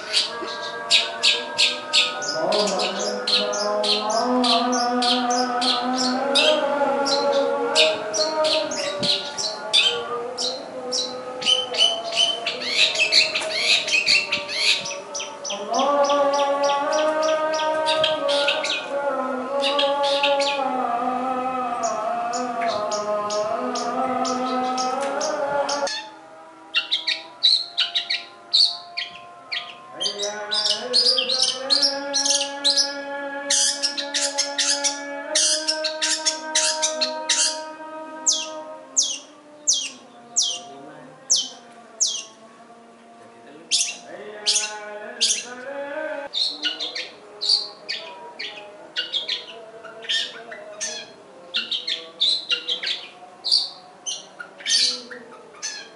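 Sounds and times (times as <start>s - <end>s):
bird chirping: 0.0s - 42.4s, 43.7s - 55.9s
droning chord of tones: 0.0s - 55.9s.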